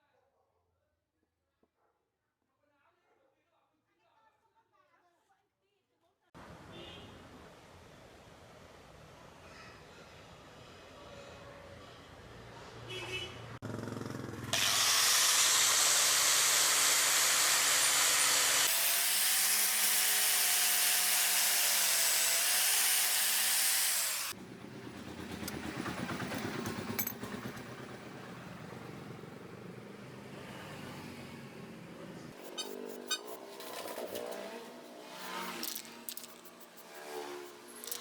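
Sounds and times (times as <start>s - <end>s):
power tool hissing: 14.6s - 24.4s.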